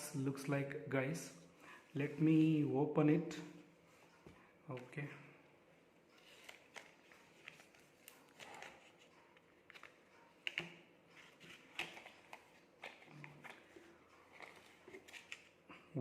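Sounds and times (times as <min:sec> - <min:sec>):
packaging clicks and rustles: 0:06.2 - 0:15.7.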